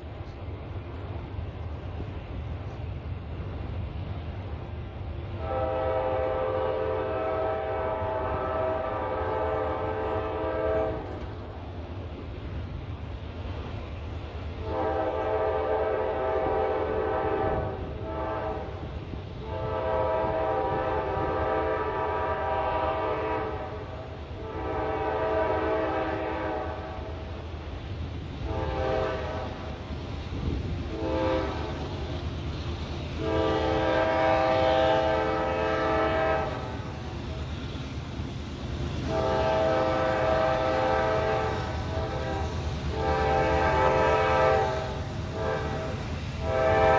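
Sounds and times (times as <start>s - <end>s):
rumble of passing train: 0.0s - 46.9s
locomotive air horn blasts: 5.4s - 11.2s, 14.6s - 18.8s, 19.4s - 23.8s, 24.4s - 27.1s, 28.4s - 29.6s, 30.8s - 31.8s, 33.2s - 36.8s, 39.0s - 46.9s.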